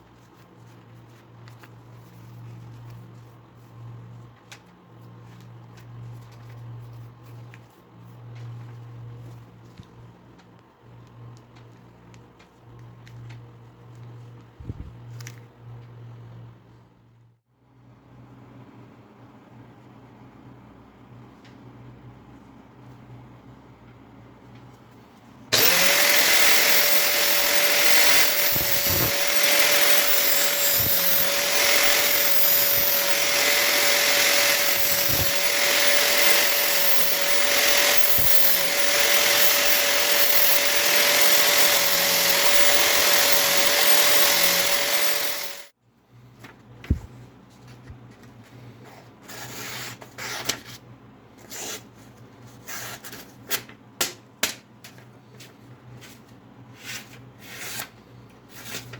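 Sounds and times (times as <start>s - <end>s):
power tool whining: 25.5s - 45.7s.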